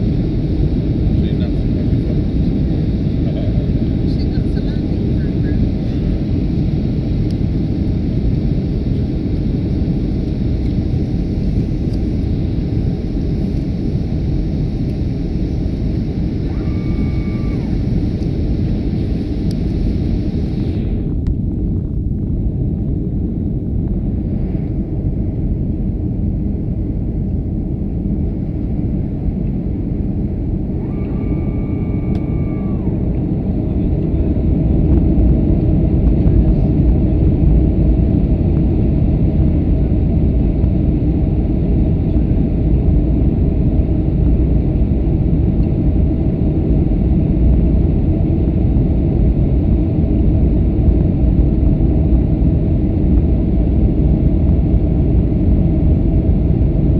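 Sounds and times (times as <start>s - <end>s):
airliner engines rumbling: 0.0s - 56.9s
brief steady tone: 16.3s - 21.0s, 30.8s - 33.3s.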